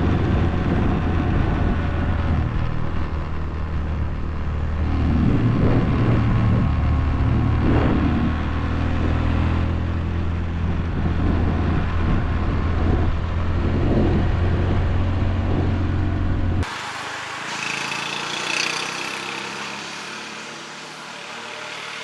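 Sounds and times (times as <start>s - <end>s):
motorcycle engine running: 9.6s - 22.0s
rushing noise: 14.7s - 22.0s.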